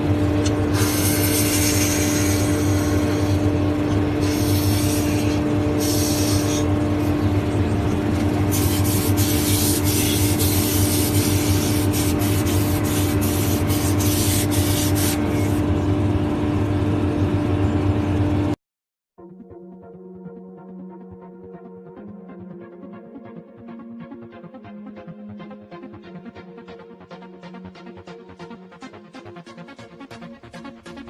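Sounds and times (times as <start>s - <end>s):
power tool motor humming: 0.0s - 15.7s
harsh hiss of tool cutting: 0.7s - 3.5s, 4.2s - 6.7s, 8.5s - 15.6s.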